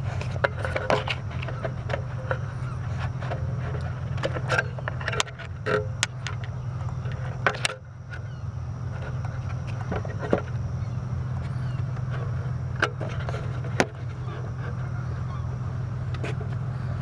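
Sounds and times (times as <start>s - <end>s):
vehicle humming: 0.0s - 17.0s.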